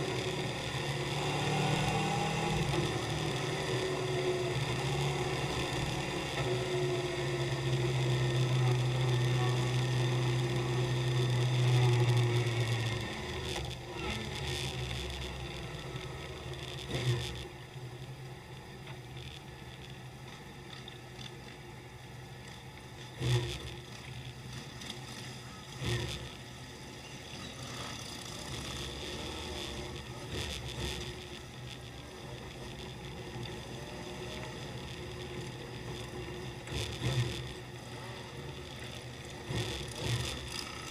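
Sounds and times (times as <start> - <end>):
rumble of engines: 0.0 - 40.9
motorcycle engine running: 22.2 - 40.9.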